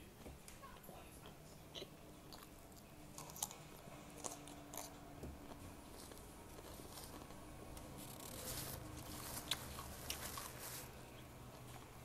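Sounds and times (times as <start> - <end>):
faint chewing of food: 0.7 - 12.0.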